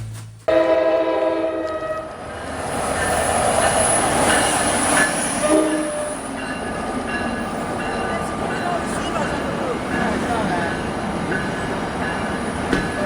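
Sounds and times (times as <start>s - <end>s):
train horn: 0.5s - 2.3s, 5.4s - 6.3s
passing train rumble: 0.5s - 13.0s.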